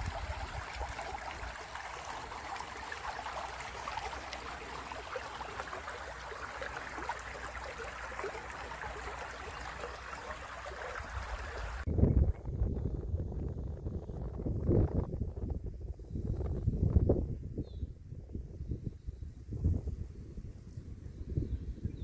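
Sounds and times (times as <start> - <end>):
stream babbling over stones: 0.0 - 11.8.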